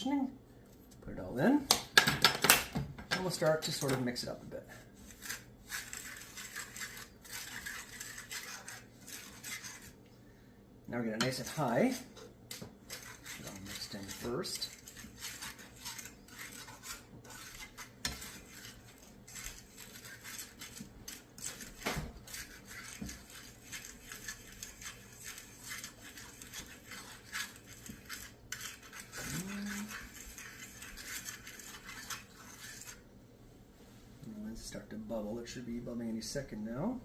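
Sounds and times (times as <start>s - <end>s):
utensil scraping and clinking pot: 3.1s - 10.0s, 11.0s - 33.0s.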